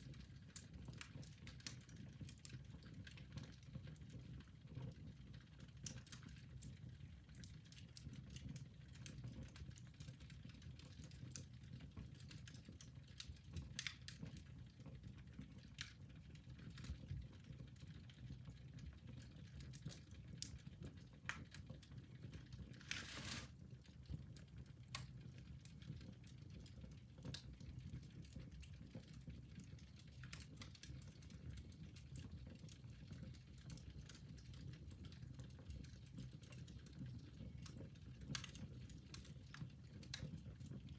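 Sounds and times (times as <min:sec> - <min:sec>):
fire crackling and popping: 0:00.0 - 0:40.9.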